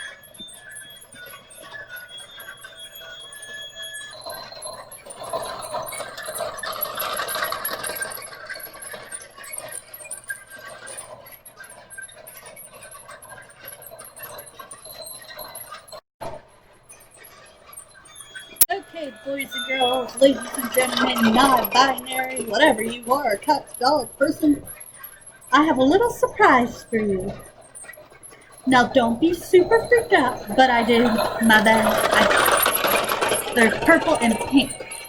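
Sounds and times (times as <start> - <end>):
toy train rattling: 0.0 - 16.0, 16.6 - 35.0
electronic chime-like tones: 18.0 - 27.5.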